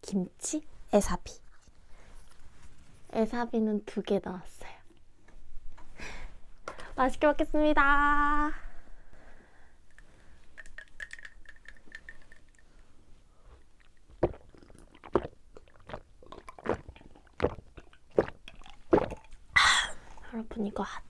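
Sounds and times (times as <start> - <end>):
person chewing: 13.4 - 20.4.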